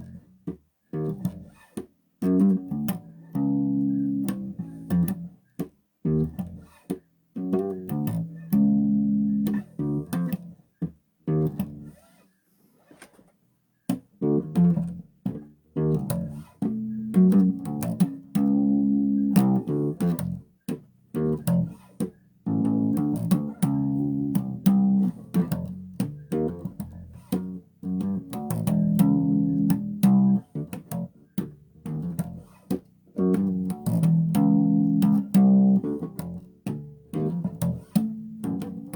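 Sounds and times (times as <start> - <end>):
bass guitar plucked notes: 0.0 - 1.6, 2.2 - 6.8, 7.4 - 10.6, 11.3 - 11.9, 14.2 - 38.9.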